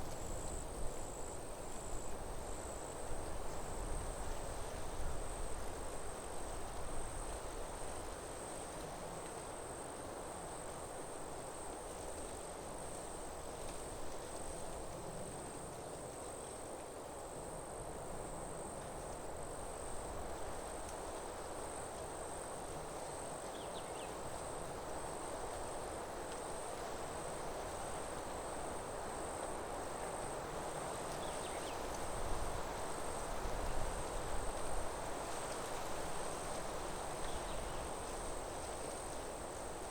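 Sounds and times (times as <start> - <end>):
wind rushing through trees: 0.0 - 39.9
insects trilling: 21.6 - 25.8, 26.4 - 39.9.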